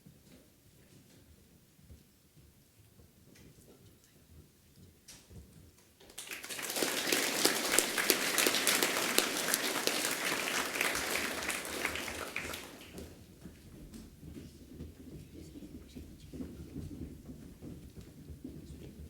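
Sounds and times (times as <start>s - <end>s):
audience applauding: 6.1s - 13.2s.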